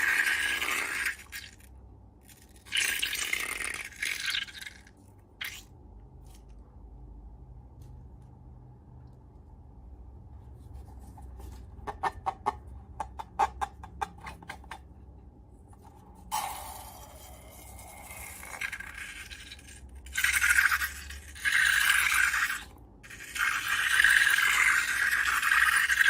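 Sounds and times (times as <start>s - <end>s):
slime scraping squish: 0.0s - 6.6s.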